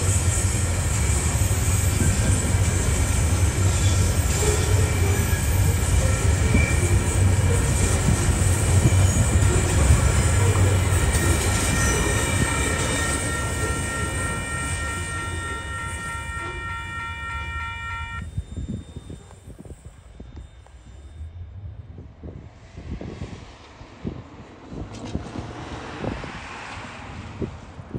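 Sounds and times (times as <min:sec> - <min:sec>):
train wheels rumbling on rail: 0:00.0 - 0:27.9
level crossing warning bell: 0:03.4 - 0:21.4.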